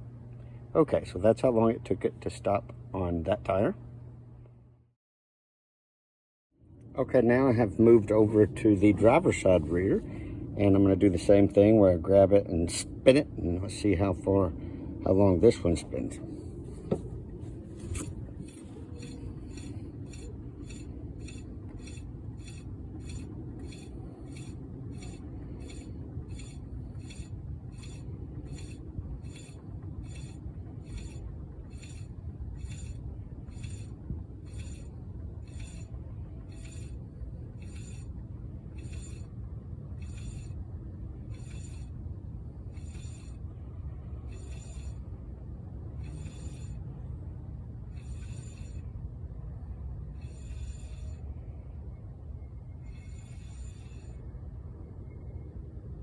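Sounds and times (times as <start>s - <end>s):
low rumble: 12.4s - 40.0s
spinning wheel ticking: 18.4s - 33.9s.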